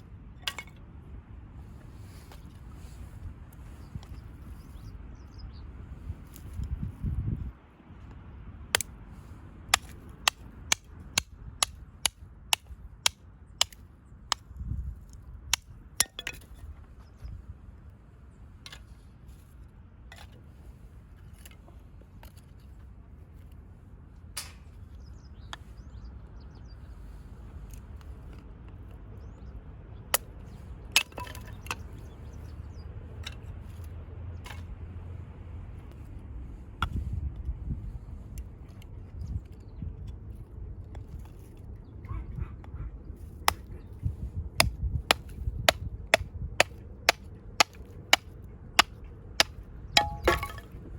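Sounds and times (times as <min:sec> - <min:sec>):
firewood splitting knocks: 0:44.6 - 0:50.7.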